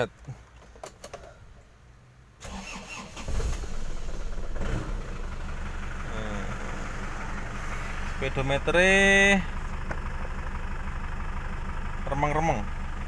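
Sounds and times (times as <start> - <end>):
starter motor cranking: 2.4 - 5.2
diesel engine idling: 2.4 - 13.0.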